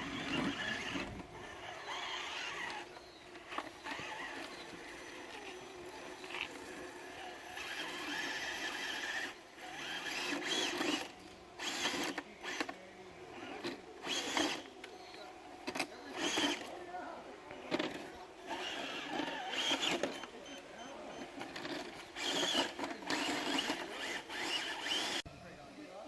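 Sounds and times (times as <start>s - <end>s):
electric motor whining: 0.0s - 15.0s, 15.6s - 16.8s, 17.7s - 25.2s.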